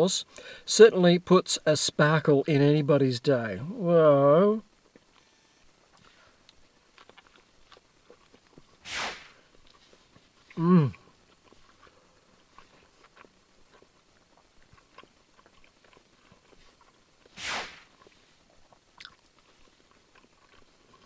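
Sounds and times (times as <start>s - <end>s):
person chewing: 5.9s - 21.0s
short rush of breath: 8.8s - 9.4s, 17.4s - 17.9s.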